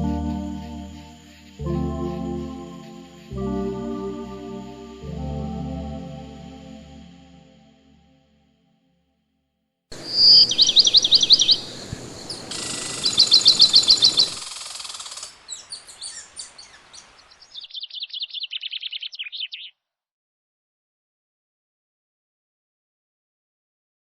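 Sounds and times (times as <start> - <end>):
background noise: 0.0 - 8.1, 9.9 - 19.8
songbird trilling: 10.0 - 19.7.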